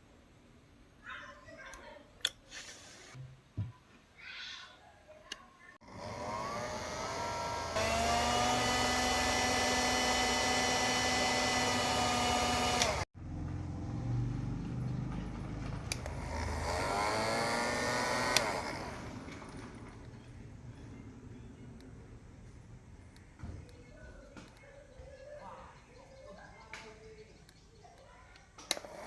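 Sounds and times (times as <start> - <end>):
small electric motor whining: 5.8 - 13.1, 15.9 - 20.2, 28.6 - 29.0.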